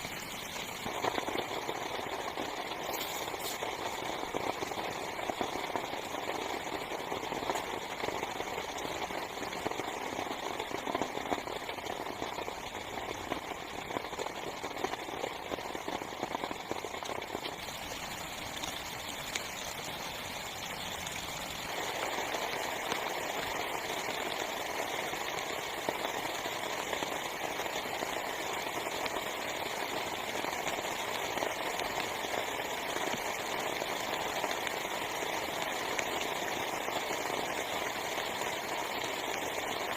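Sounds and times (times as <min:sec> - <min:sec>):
heavy rain on tent fabric: 0:00.0 - 0:39.9.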